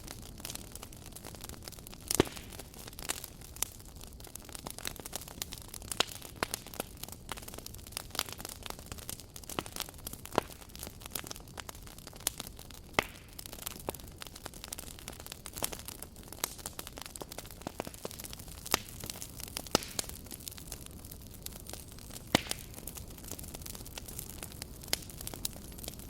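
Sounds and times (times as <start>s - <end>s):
campfire crackling: 0.0s - 26.0s
loud pops of burning wood: 0.0s - 26.0s.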